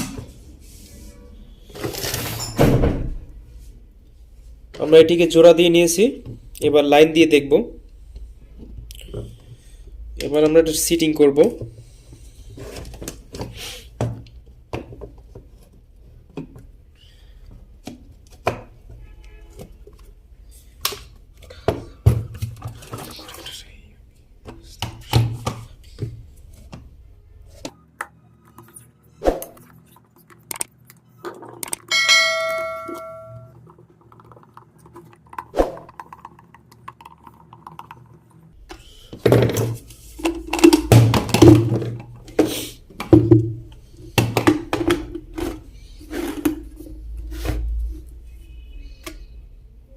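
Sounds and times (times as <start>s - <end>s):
short metallic ring: 31.9s - 33.5s.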